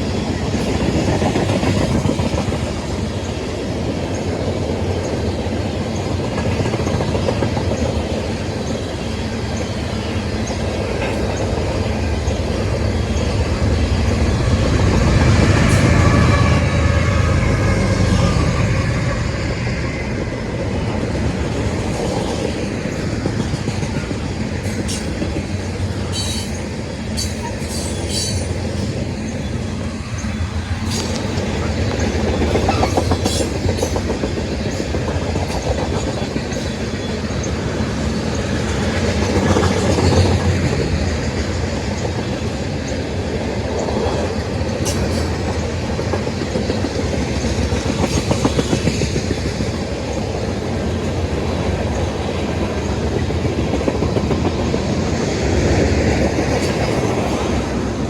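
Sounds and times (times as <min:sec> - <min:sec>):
train rumbling past: 0:00.0 - 0:58.0
wheels clacking over rails: 0:20.3 - 0:58.0.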